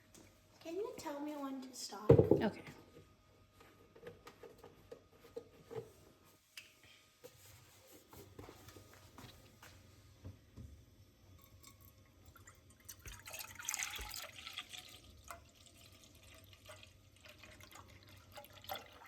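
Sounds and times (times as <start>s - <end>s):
milk dribbling and dripping: 11.4s - 19.0s
milk pouring into a pan: 11.4s - 19.0s.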